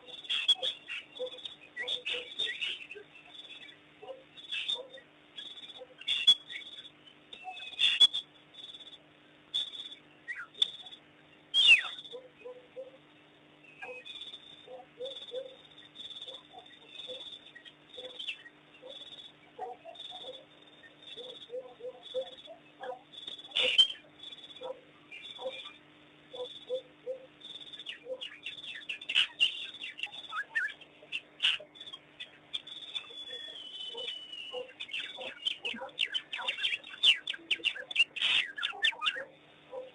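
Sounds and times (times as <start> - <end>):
wild dogs chirping and squealing: 0.1 - 3.0, 4.0 - 5.0, 13.8 - 39.9
high chirps and twitters: 26.4 - 39.4.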